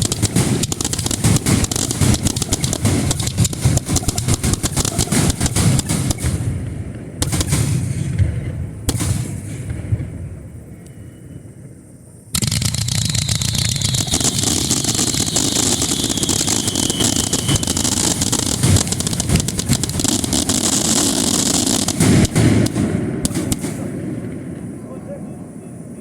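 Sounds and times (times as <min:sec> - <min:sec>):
fireworks barrage crackling: 0:00.0 - 0:10.6, 0:12.4 - 0:25.5
firework echoes: 0:00.0 - 0:11.6, 0:12.4 - 0:25.0
falling firework whistle: 0:12.6 - 0:21.7.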